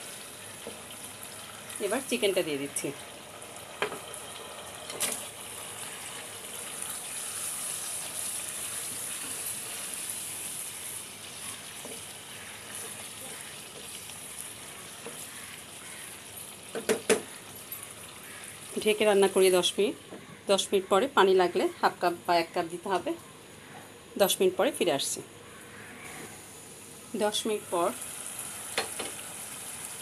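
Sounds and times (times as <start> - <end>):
chicken sizzling in hot oil: 0.0 - 19.8, 26.4 - 30.0.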